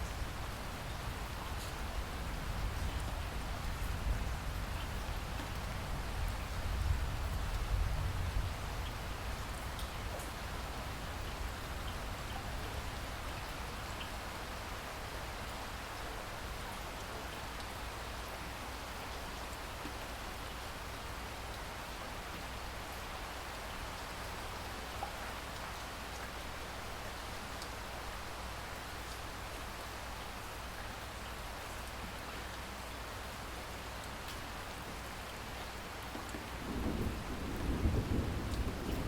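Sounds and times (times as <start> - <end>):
steady rain hiss: 0.0 - 39.0.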